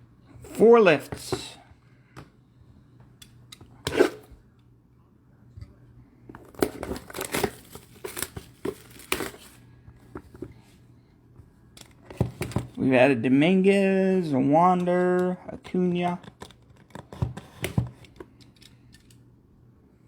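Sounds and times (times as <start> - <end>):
packaging tearing and crinkling: 6.5 - 9.6.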